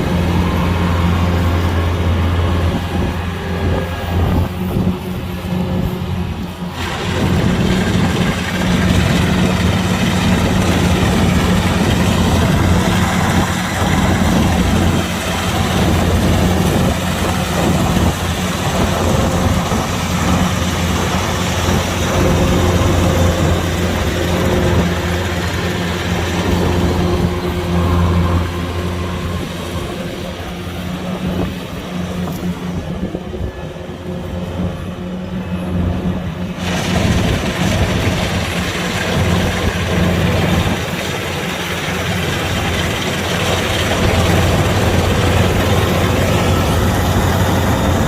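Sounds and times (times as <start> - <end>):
combine harvester running: 0.0 - 48.0.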